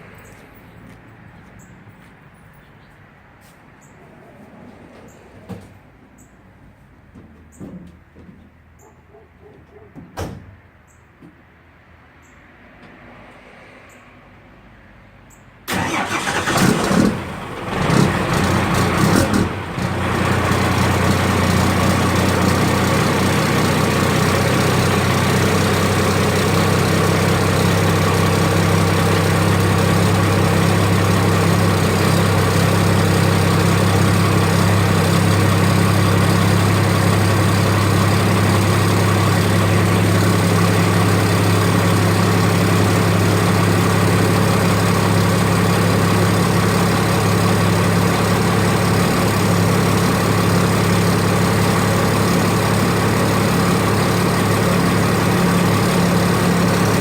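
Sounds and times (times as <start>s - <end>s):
diesel engine cranking: 15.7s - 57.0s
diesel engine idling: 15.7s - 57.0s.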